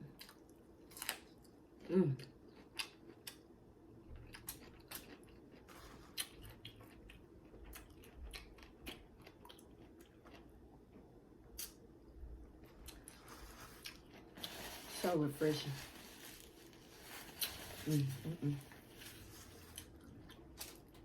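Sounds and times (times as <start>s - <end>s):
chewing food: 2.2s - 3.5s, 4.1s - 11.7s.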